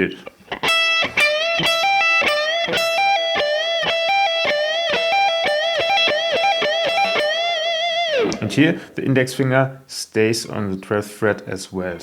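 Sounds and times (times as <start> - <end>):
electric guitar lick: 0.2 - 8.6.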